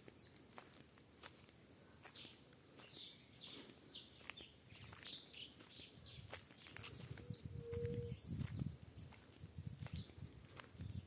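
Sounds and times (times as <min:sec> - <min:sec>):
footsteps on dry leaves: 0:00.0 - 0:07.3.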